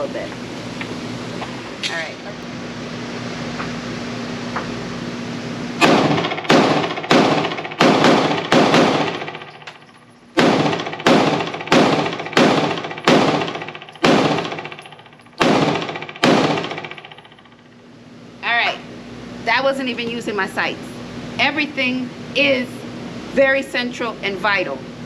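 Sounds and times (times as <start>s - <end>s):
pistol shots echoing indoors: 5.8s - 17.6s.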